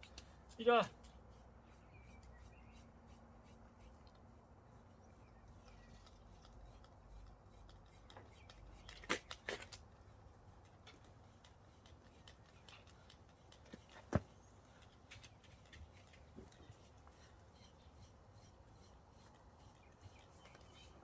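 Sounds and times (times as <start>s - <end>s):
brush strokes through dog coat: 0.8s - 4.0s.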